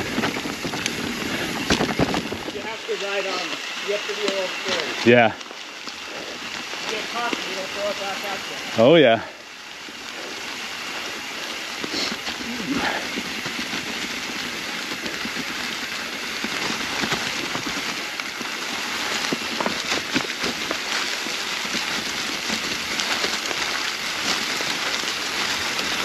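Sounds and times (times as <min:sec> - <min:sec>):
clicks and knocks from rocks: 0:00.0 - 0:02.6, 0:11.8 - 0:26.0
tyres crunching leaves: 0:00.0 - 0:26.0.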